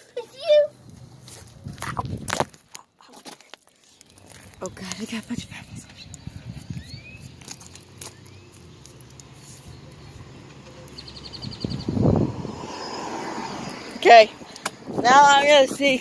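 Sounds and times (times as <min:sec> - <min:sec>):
birds chirping: 0:03.7 - 0:15.8.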